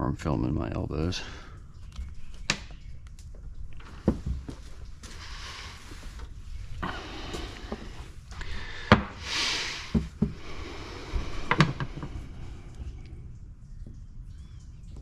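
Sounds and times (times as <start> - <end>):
scraping and rustling: 3.7 - 8.4
parts clicking and knocking: 11.3 - 12.2.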